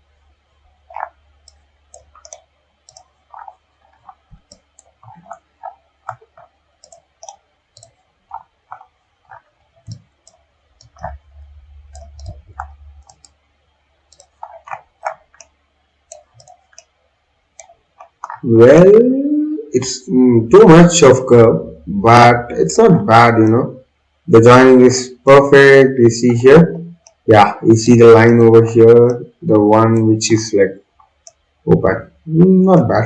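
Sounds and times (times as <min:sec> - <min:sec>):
faint low hum: 0:00.0 - 0:33.0
computer mouse clicking: 0:00.1 - 0:18.5, 0:26.3 - 0:27.2, 0:30.8 - 0:31.6.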